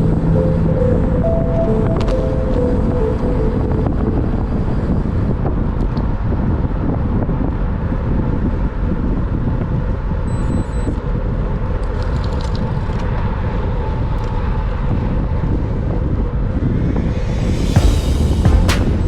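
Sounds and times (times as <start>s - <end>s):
rushing wind: 12.6s - 19.0s.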